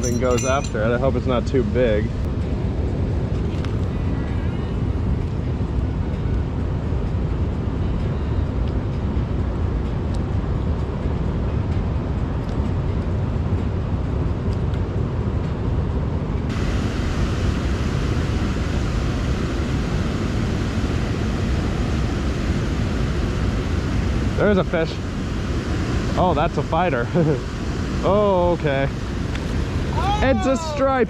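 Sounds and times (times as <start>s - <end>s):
water rushing below spillway: 16.5s - 31.0s.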